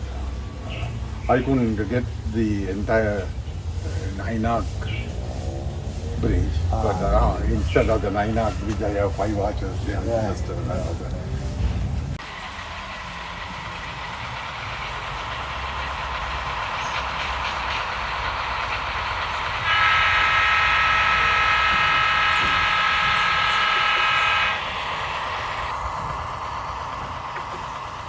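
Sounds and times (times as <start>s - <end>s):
model train running: 0.0s - 5.6s, 6.2s - 11.4s, 12.0s - 28.0s
multi-tone train horn: 19.1s - 24.9s.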